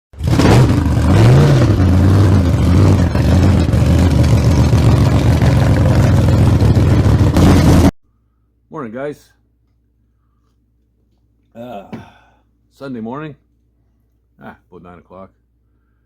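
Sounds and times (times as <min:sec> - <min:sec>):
engine running and revving: 0:00.1 - 0:07.9.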